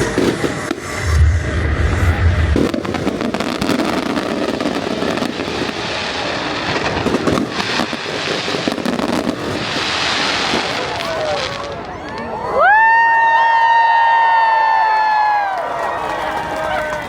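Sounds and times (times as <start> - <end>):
fireworks bangs: 0.0 - 12.5
fireworks crackling: 0.0 - 13.0.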